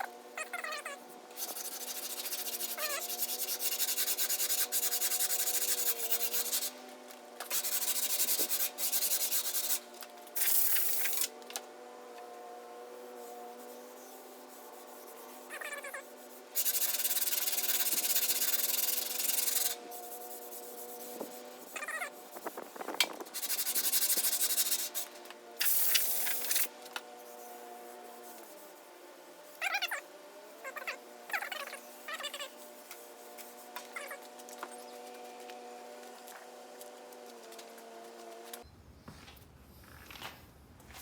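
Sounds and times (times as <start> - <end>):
sanding body filler: 1.3 - 6.8, 7.5 - 11.3, 12.8 - 29.5.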